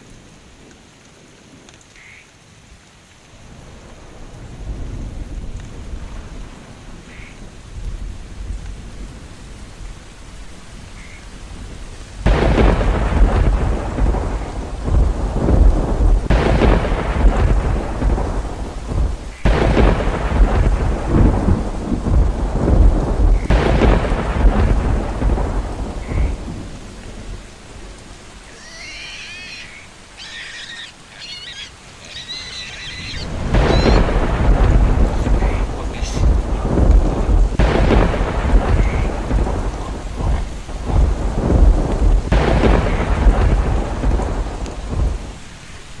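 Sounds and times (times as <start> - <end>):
heavy rain: 0.0 - 46.0
thunder rolling: 3.4 - 29.8, 32.2 - 46.0
short high chirping calls: 28.7 - 34.0.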